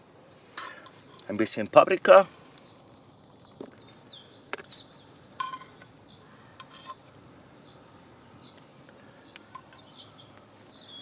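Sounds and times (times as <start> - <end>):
faint high chirps: 7.6 - 11.0.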